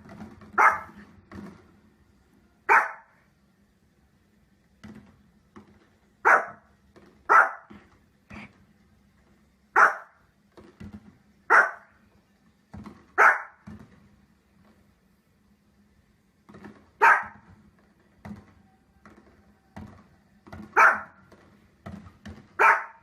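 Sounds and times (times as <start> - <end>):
dog barking: 0.6 - 1.0, 2.7 - 3.2, 6.2 - 6.7, 7.3 - 7.8, 9.8 - 10.2, 11.5 - 11.9, 13.2 - 13.6, 17.0 - 17.4, 20.7 - 21.2, 22.6 - 23.0.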